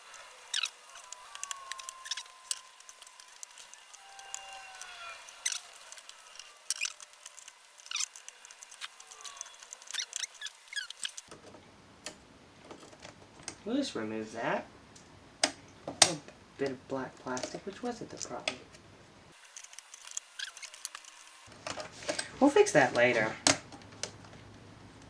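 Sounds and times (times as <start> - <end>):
plastic squeaky creaks: 0.0 - 11.5, 19.4 - 21.8
plastic clicks: 0.0 - 13.6, 19.4 - 22.3.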